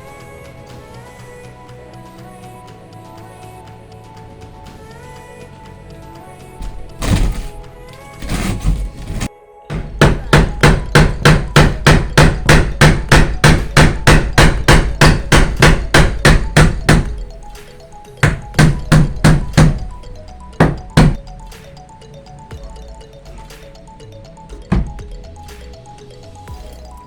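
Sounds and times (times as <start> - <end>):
background music: 0.0 - 27.0
hammer blows: 6.6 - 7.6, 8.2 - 20.0.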